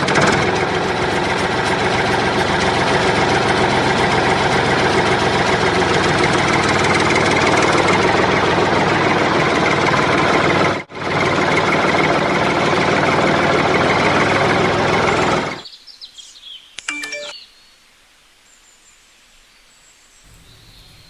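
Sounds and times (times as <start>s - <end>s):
tractor engine idling: 0.0s - 15.6s, 20.3s - 21.0s.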